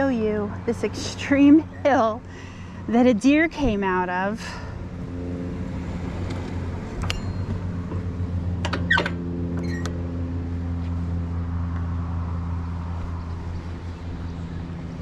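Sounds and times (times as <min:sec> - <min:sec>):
short falling squeak: 0:08.8 - 0:10.0.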